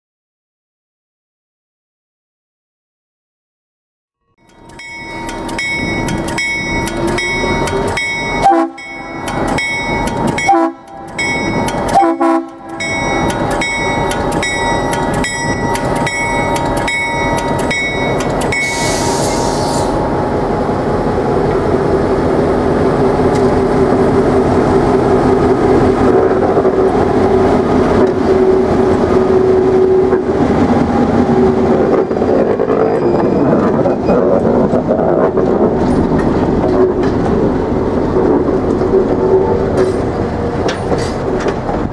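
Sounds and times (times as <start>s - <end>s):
bell ringing: 4.4s - 19.2s
diesel locomotive engine drone: 4.4s - 41.9s.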